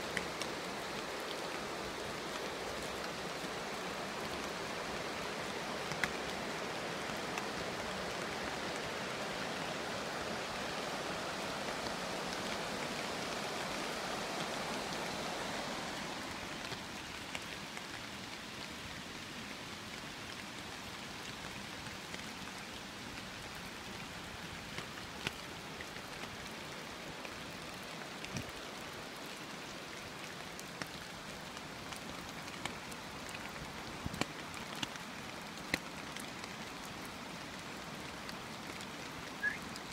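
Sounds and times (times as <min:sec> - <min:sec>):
raindrops tapping: 0:00.0 - 0:18.7, 0:30.2 - 0:39.9
steady rain hiss: 0:00.0 - 0:39.9.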